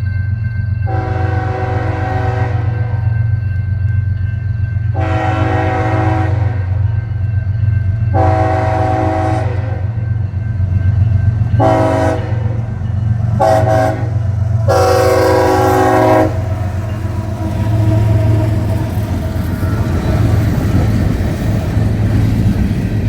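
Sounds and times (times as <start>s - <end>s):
train rumbling: 0.0s - 23.0s
locomotive air horn blasts: 0.9s - 3.0s, 5.0s - 6.8s, 8.2s - 9.9s, 11.6s - 12.6s, 13.4s - 18.7s.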